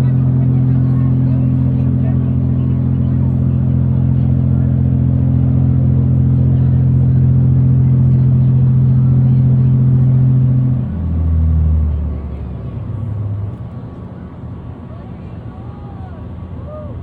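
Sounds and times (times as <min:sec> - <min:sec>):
ferry engine droning: 0:00.0 - 0:17.0.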